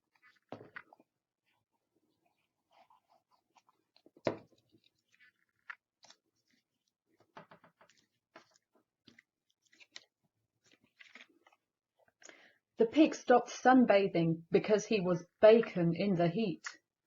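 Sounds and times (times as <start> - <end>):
card rustling and clicking: 3.5 - 11.6.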